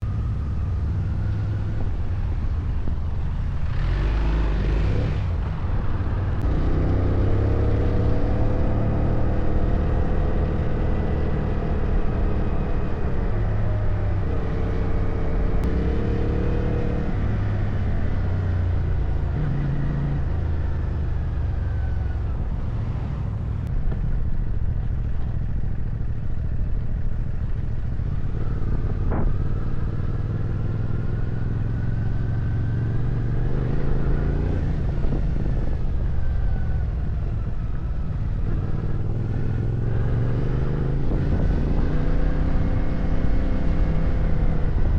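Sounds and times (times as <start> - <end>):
motorcycle engine revving: 3.4 - 24.1, 24.8 - 44.9
steady low rumble: 22.0 - 30.8.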